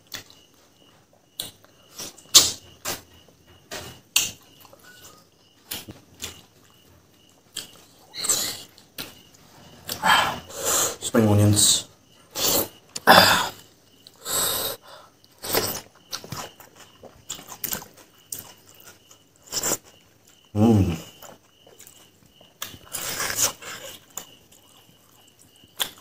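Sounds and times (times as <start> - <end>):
wet chewing and lip-smacking: 4.1 - 10.0, 15.2 - 20.5, 21.1 - 26.0.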